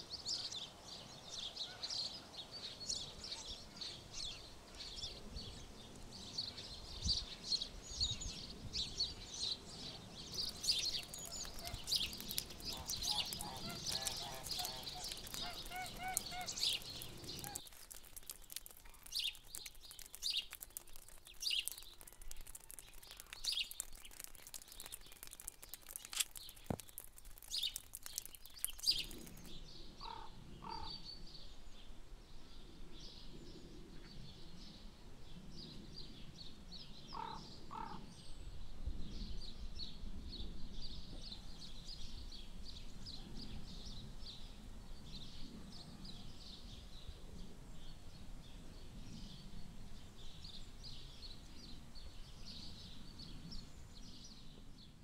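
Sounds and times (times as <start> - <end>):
small birds chirping: 0.0 - 31.8
sharp ticks: 10.4 - 29.5.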